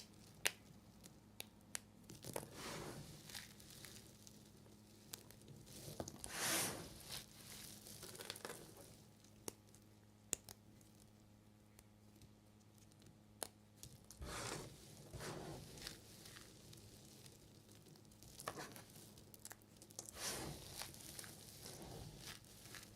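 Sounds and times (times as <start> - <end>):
knife cutting soap: 14.1 - 16.6, 20.0 - 22.9.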